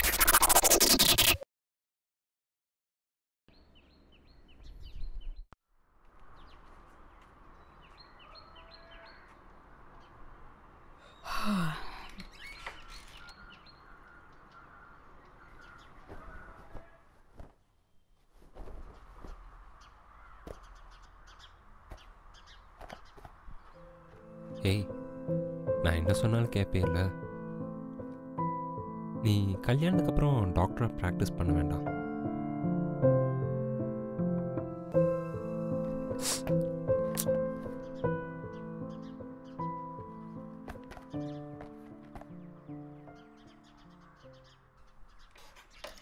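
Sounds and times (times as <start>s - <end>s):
small birds chirping: 3.5s - 5.5s, 6.1s - 25.2s, 36.4s - 46.0s
harsh bird call: 8.0s - 9.5s, 12.2s - 17.2s
crow cawing: 8.1s - 9.4s, 13.3s - 17.2s, 20.0s - 21.4s.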